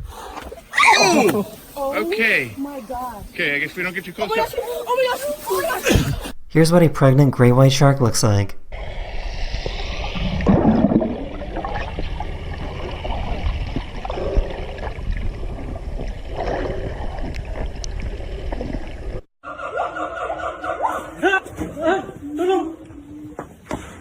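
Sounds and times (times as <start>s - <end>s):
water sloshing and gurgling: 8.7s - 19.3s.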